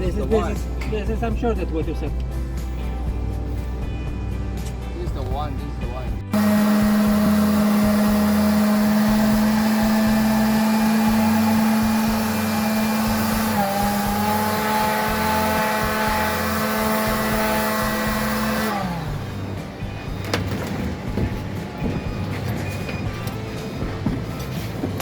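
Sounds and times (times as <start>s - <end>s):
power tool motor running: 6.3s - 20.2s.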